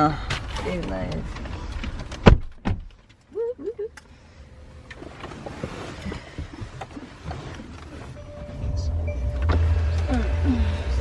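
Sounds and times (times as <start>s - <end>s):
rustling in car cabin: 0.3s - 3.3s, 4.8s - 11.0s
faint low rumble: 7.7s - 11.0s.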